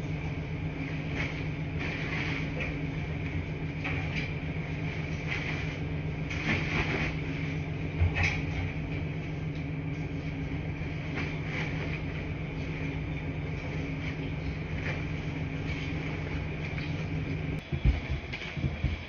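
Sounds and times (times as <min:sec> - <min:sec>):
washing machines humming: 0:00.0 - 0:19.0.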